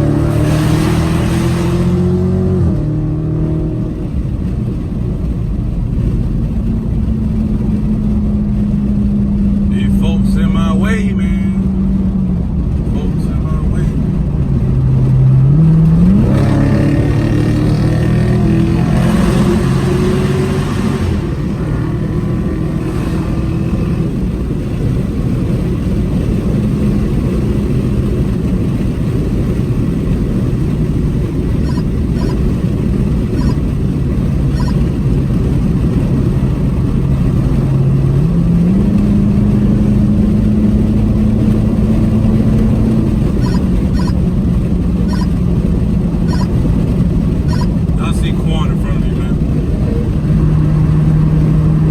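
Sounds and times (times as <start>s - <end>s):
car engine and exhaust driving: 0.0s - 51.9s.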